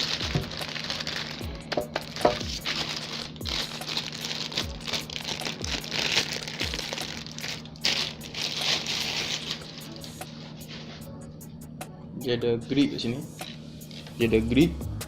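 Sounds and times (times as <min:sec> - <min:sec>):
music with thumping beat: 0:00.0 - 0:08.7, 0:09.6 - 0:15.0
plastic packaging crinkling: 0:00.0 - 0:11.0.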